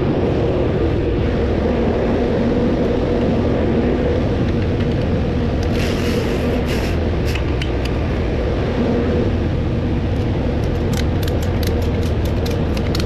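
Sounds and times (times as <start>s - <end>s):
truck engine rumbling: 3.3s - 13.0s.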